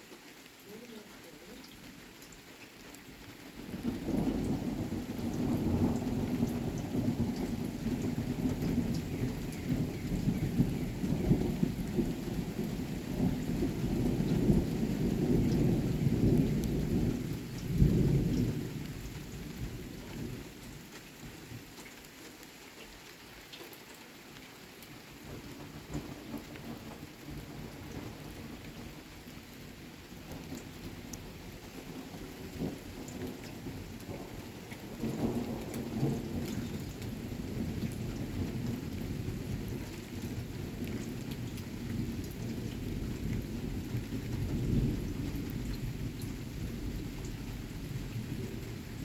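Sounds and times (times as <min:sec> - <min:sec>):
rain hissing: 0:00.0 - 0:49.0
thunder rumbling: 0:03.6 - 0:20.4, 0:30.0 - 0:49.0.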